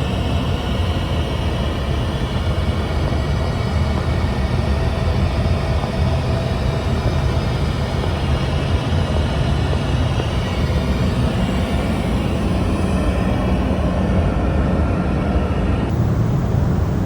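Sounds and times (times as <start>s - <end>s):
airliner cabin roar: 0.3s - 17.0s
faint steady hum: 8.1s - 17.0s.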